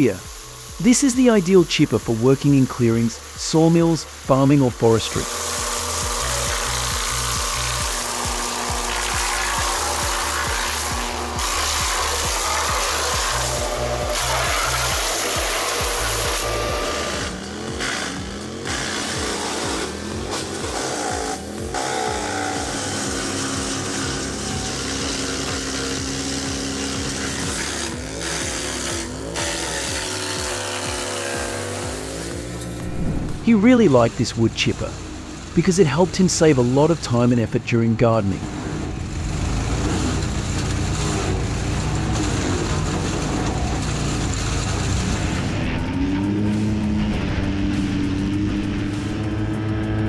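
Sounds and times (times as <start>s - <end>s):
wood chipper chipping branches: 0.0s - 50.0s
noisy rush from chipper: 32.4s - 35.6s, 39.0s - 50.0s.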